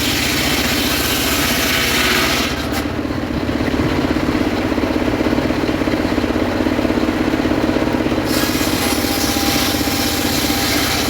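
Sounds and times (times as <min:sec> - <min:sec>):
saw blade cutting wood: 0:00.0 - 0:03.0, 0:08.2 - 0:11.0
sawmill engine running: 0:00.0 - 0:11.0.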